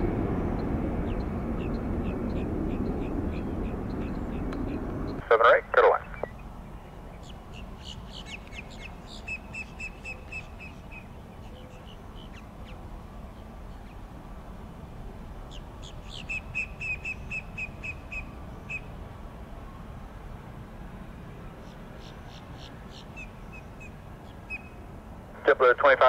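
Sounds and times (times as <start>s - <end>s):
steady low rumble: 0.0s - 21.7s
songbird singing: 0.5s - 5.2s, 5.9s - 14.1s, 15.4s - 19.0s, 21.6s - 24.9s.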